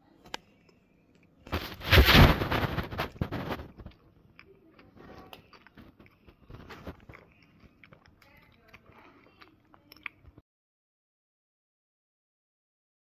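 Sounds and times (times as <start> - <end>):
chewing soft pastry: 0.0 - 10.4
soft rustles: 1.5 - 4.1.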